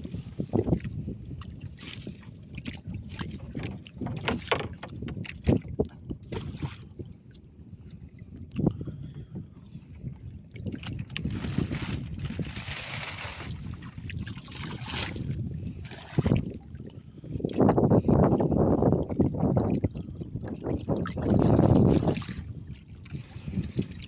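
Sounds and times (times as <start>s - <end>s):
water splashing and lapping: 0.0s - 24.0s
knocks against boat hull: 3.4s - 5.3s.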